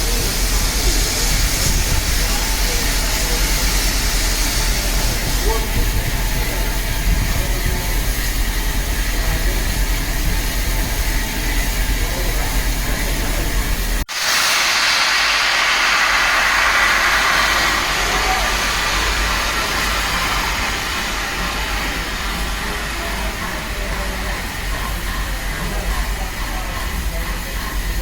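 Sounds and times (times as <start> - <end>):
loud steady hiss of steam: 0.0 - 28.0
locomotive low rumble: 15.0 - 28.0
faint voices: 17.8 - 28.0.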